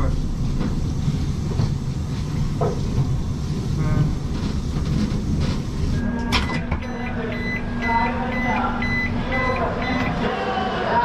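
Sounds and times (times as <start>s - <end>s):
train rumbling on rails: 0.0s - 6.0s.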